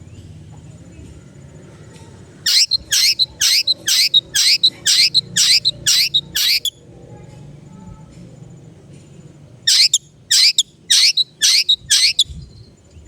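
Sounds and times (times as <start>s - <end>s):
bird harsh downward calls: 2.4s - 6.8s, 9.7s - 12.3s.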